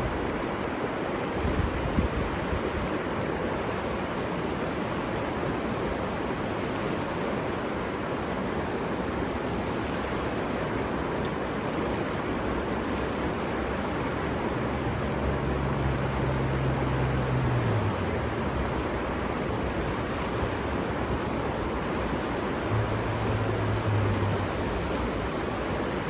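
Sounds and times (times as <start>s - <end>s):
river rushing: 0.0s - 26.0s
low bumps: 14.2s - 26.0s.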